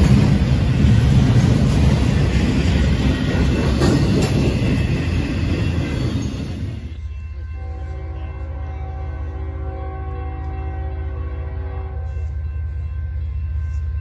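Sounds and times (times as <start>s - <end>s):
freight train rumbling past: 0.0s - 14.0s
multi-note locomotive horn: 7.3s - 14.0s.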